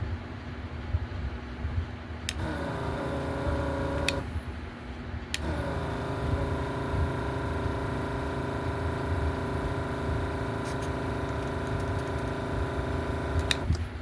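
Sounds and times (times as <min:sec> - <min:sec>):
vacuum pump humming: 0:02.3 - 0:04.7, 0:05.3 - 0:14.0
pump switch click: 0:10.5 - 0:13.8.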